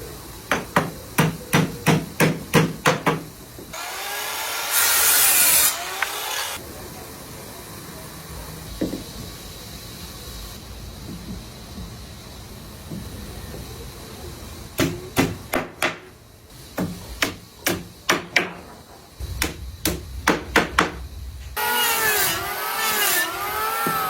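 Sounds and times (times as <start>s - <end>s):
hammer striking wood: 0.5s - 3.3s, 14.8s - 16.1s, 16.8s - 21.0s, 23.6s - 24.0s
machine whine: 19.2s - 24.0s.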